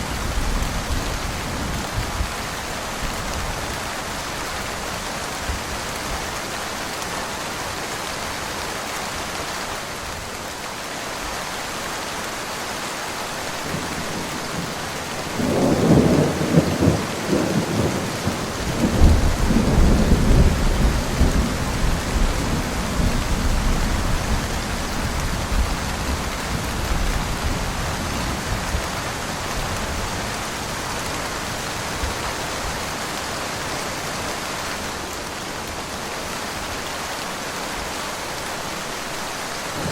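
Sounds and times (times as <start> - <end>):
steady rain falling: 0.0 - 39.9
thunderclap: 13.7 - 23.8.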